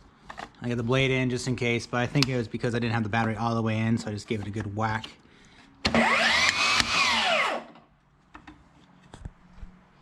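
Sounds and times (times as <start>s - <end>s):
table saw blade whining: 5.9s - 7.8s.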